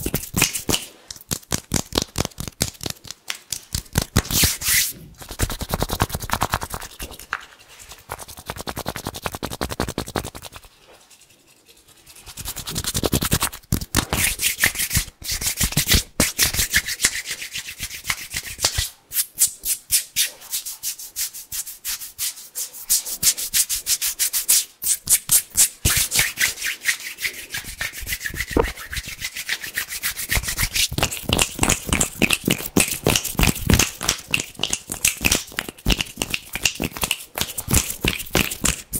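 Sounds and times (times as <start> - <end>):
hands rubbing together: 0.0 - 38.9.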